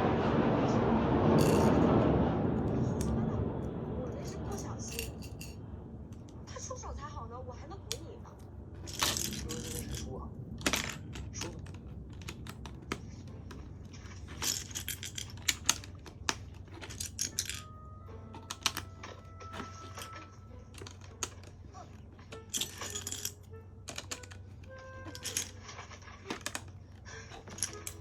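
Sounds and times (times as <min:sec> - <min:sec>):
quiet background music: 0:00.0 - 0:28.0
plastic pieces clicking and rattling: 0:08.8 - 0:28.0.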